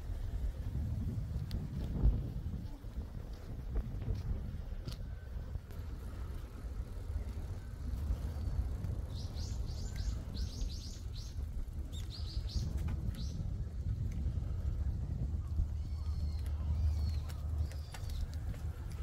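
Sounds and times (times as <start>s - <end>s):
wind rumble on microphone: 0.0s - 19.0s
small bird chirping: 9.1s - 13.4s.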